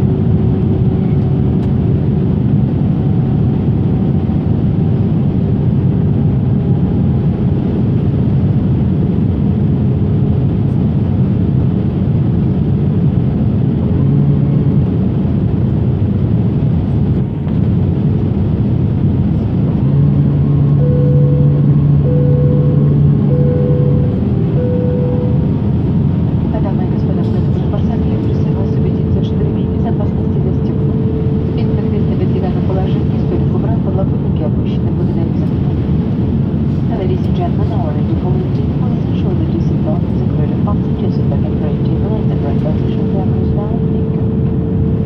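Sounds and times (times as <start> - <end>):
airliner cabin engine rumble: 0.0 - 45.0
steady hum: 11.4 - 45.0
faint short tone: 20.8 - 25.4.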